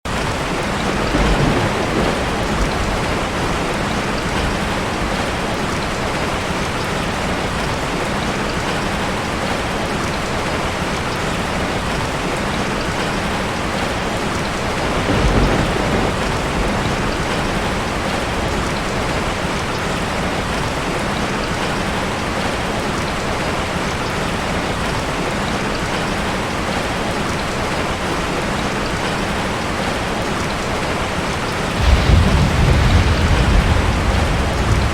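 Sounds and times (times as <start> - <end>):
heavy rain on foliage: 0.0 - 34.9
low rumbles: 31.8 - 34.9.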